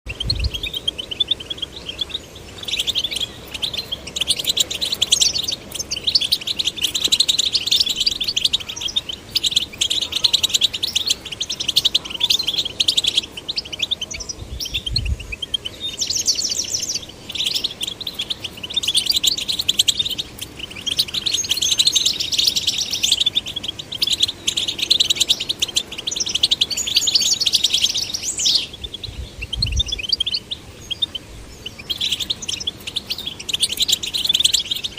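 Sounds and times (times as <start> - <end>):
goldfinch twittering song: 0.1 - 34.9.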